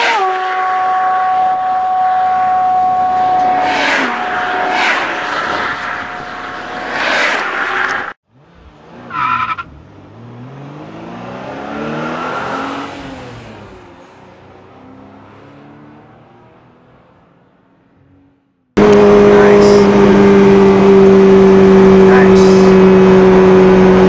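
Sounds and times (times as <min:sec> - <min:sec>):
car tyres squealing and skidding: 0:00.0 - 0:08.2, 0:09.0 - 0:09.8, 0:11.6 - 0:13.4.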